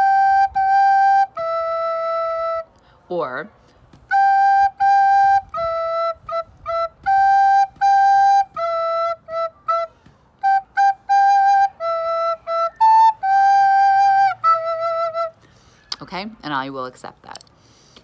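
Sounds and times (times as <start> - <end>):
recorder playing simple melody: 0.0 - 2.8, 4.1 - 15.4.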